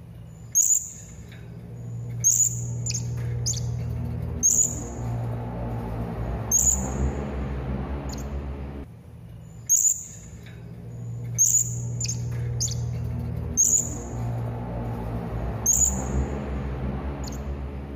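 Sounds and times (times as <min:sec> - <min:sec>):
steady low hum: 0:00.0 - 0:17.9
parrot high-pitched calls: 0:02.0 - 0:08.4, 0:09.7 - 0:10.4, 0:11.2 - 0:14.2.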